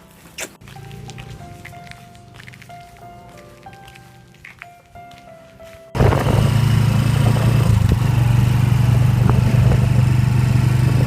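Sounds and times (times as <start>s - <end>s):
soft music: 0.0s - 6.4s
noisy rush: 6.0s - 11.0s
vehicle engine droning: 6.0s - 11.0s.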